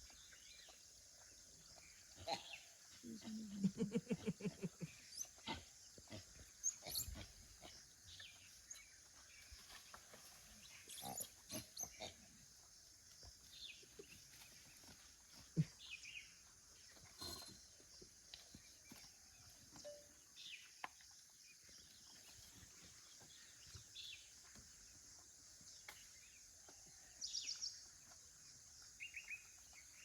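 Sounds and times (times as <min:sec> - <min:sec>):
faint bird chirps: 0:19.7 - 0:20.7.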